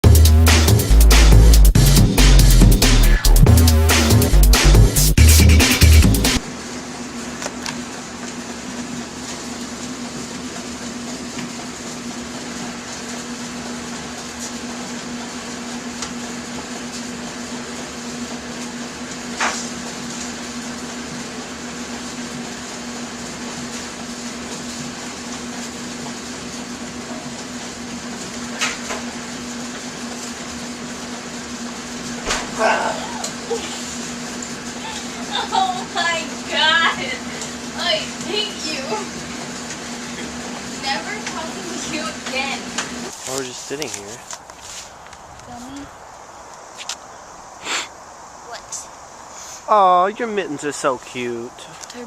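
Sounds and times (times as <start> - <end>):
constant low hum: 32.0 - 39.4.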